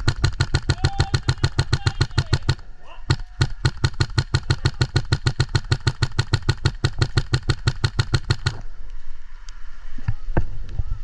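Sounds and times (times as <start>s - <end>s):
airsoft gun full-auto burst: 0.0s - 8.6s.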